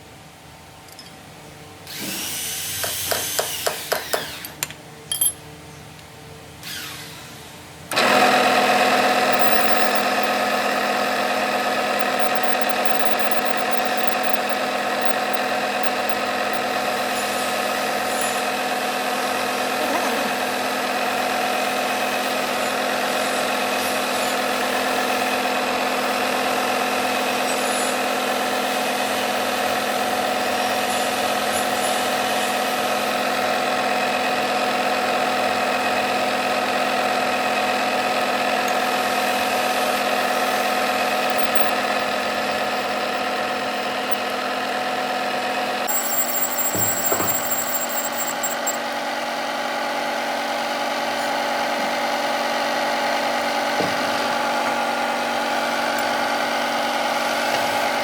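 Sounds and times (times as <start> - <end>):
workshop machine running: 6.6 - 26.1, 27.2 - 58.0
quick clicks: 9.2 - 10.6, 11.8 - 16.8, 41.2 - 42.1, 45.9 - 48.8
burst of tool noise: 45.9 - 48.8.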